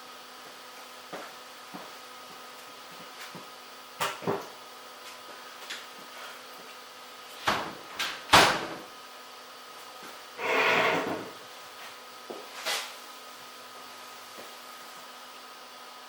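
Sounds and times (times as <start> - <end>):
short scraping: 10.4 - 11.4.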